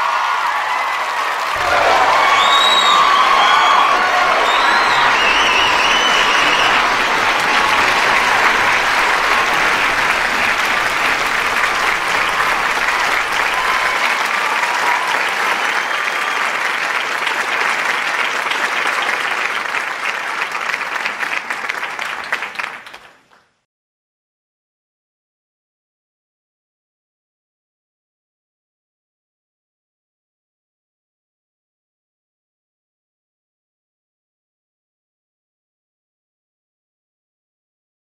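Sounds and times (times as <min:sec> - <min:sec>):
audience cheering: 0:00.0 - 0:22.9
audience applauding: 0:00.0 - 0:23.6.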